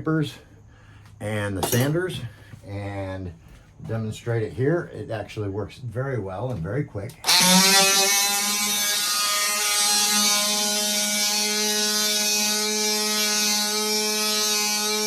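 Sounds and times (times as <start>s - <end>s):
oscillating multi-tool sanding: 7.2s - 15.0s.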